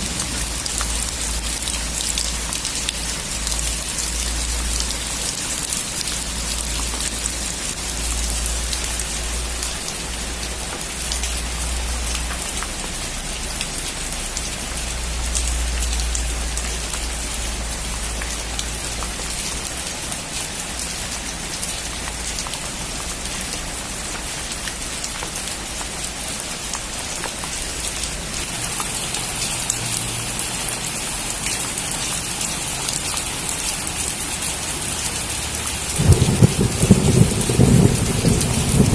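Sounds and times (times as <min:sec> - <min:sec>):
deep low rumble: 0:00.0 - 0:01.9
heavy rain pattering: 0:00.0 - 0:38.9.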